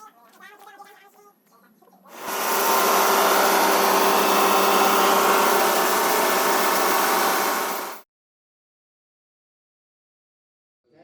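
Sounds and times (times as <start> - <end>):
power saw running: 2.1 - 8.0.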